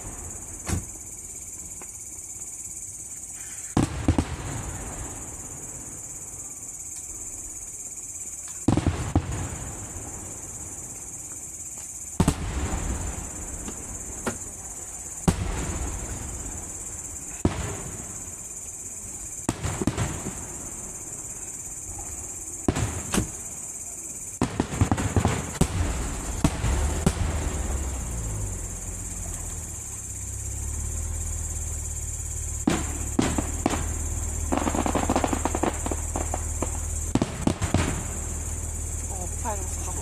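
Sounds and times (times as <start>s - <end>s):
fireworks bursting with bangs: 0.0s - 2.0s, 3.3s - 6.3s, 8.4s - 11.0s, 11.6s - 40.0s
low rumbling echo: 25.6s - 40.0s.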